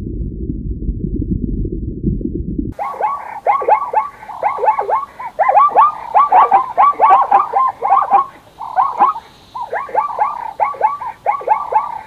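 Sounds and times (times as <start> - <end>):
chorus of animal calls: 2.8 - 12.0.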